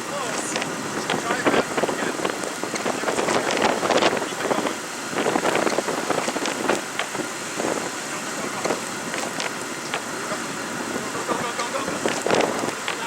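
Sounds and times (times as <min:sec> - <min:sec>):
blizzard wind buffeting microphone: 0:00.0 - 0:13.0
short irregular crackles: 0:00.3 - 0:10.2, 0:11.8 - 0:13.0.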